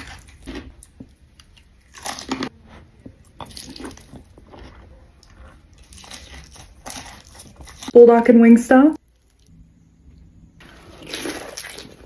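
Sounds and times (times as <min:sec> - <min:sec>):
crunchy bites: 0:00.0 - 0:02.5
wet chewing: 0:00.0 - 0:08.0, 0:10.6 - 0:12.0.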